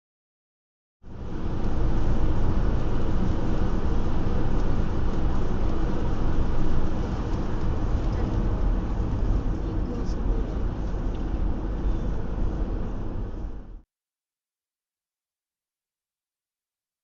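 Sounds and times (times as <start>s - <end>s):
car engine rumble: 1.0s - 13.8s
road noise: 1.0s - 13.8s.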